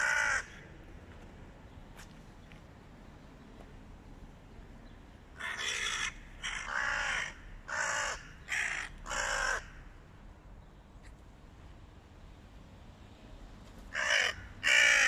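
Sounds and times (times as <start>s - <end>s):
crow cawing: 0.0s - 0.6s, 5.4s - 9.9s, 13.9s - 15.0s.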